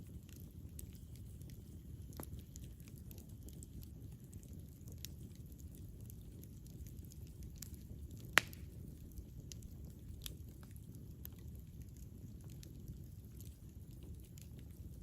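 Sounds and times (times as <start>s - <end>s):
campfire rumbling: 0.0s - 15.0s
fire crackling: 0.0s - 15.0s.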